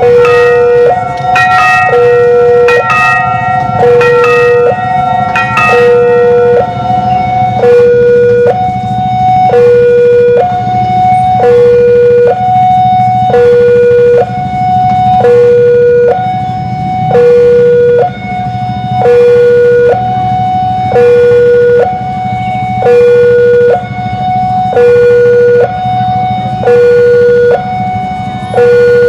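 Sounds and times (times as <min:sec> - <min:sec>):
ringing bell-like strikes: 0:00.0 - 0:08.7
low traffic rumble: 0:00.0 - 0:29.0
two-tone crossing alarm: 0:00.0 - 0:29.0.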